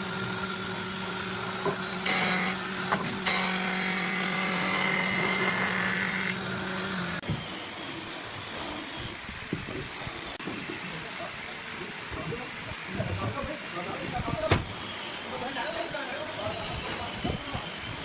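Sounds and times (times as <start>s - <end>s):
electric power tool motor running: 0.0s - 10.4s, 14.7s - 18.0s.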